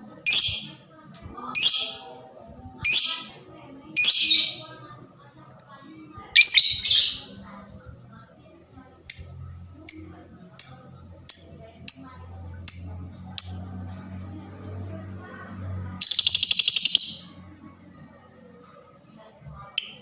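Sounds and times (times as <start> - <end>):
bird chattering trill: 6.4 - 7.3, 16.0 - 17.3
bird chirping shrilly: 6.4 - 7.3, 16.0 - 17.3.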